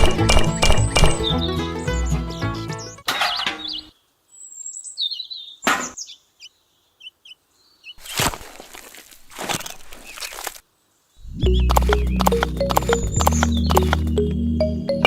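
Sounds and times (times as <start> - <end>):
sharp knock: 0.0 - 1.3
music: 0.0 - 3.0, 11.3 - 15.0
birds chirping: 0.0 - 8.2, 9.4 - 15.0.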